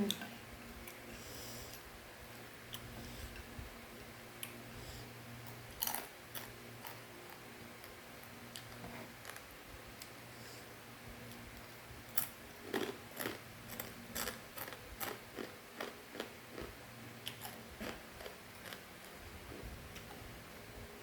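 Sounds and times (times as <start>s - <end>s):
crunching crispy snack: 12.1s - 16.7s, 17.3s - 19.2s.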